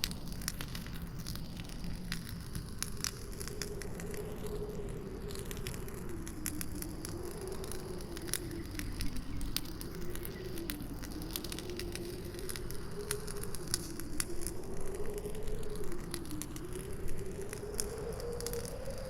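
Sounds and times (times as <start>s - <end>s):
campfire crackling and popping: 0.0s - 19.0s
howling wind: 0.0s - 19.0s.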